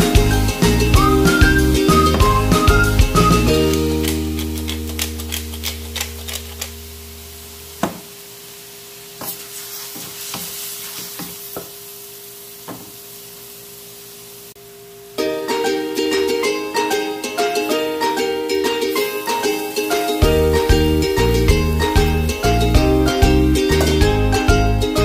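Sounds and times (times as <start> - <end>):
chicken sizzling in a wok: 0.0 - 24.7
utensil scraping a pan: 3.7 - 6.8
held music chord: 15.2 - 25.0.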